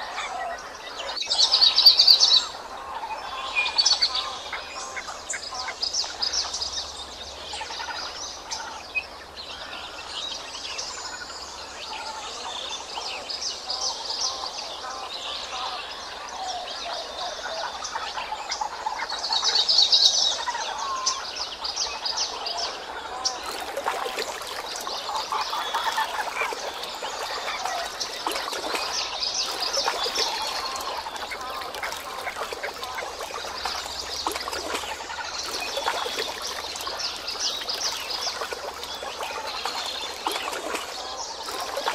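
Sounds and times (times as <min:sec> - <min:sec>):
birds chirping and calling: 0:23.2 - 0:41.9.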